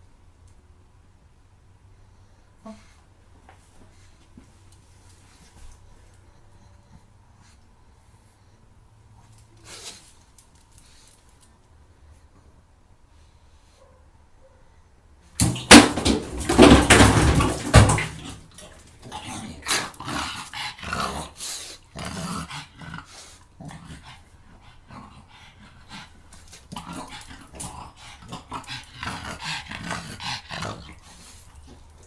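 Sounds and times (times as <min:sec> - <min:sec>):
dog growling and barking: 0:15.5 - 0:31.2.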